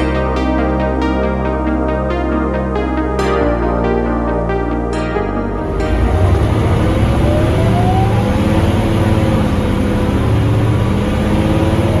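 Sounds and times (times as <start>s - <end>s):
bus engine pulling away: 5.5s - 12.0s.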